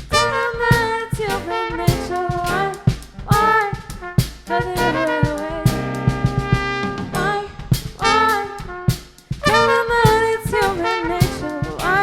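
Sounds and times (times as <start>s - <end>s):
brass and saxophone lines: 0.0s - 12.0s
drum beat: 0.0s - 12.0s.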